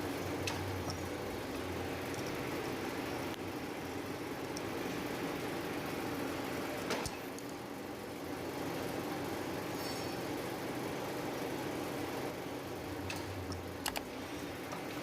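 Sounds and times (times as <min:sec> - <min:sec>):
sharp clicks: 0:13.1 - 0:14.1.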